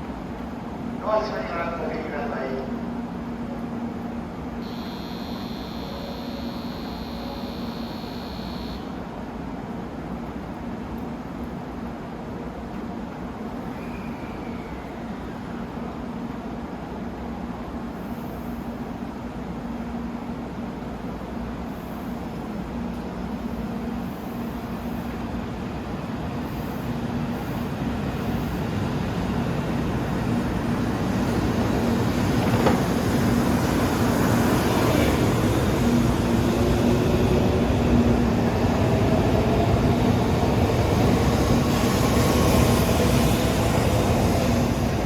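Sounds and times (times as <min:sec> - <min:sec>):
train rumble: 0:09.0 - 0:45.0.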